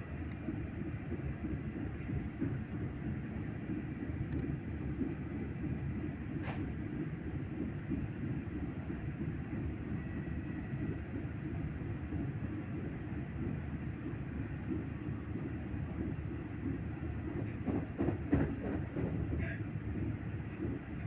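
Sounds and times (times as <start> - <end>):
train rumbling: 0.0 - 21.0
train knocks: 3.6 - 11.0, 12.1 - 21.0.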